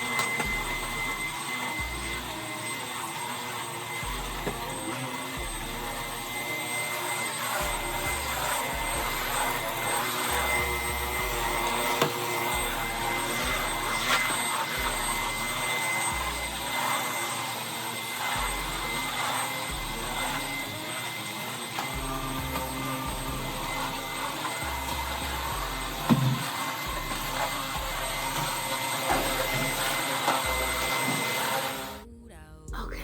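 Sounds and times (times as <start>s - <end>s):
vacuum cleaner motor whine: 0.0s - 32.0s.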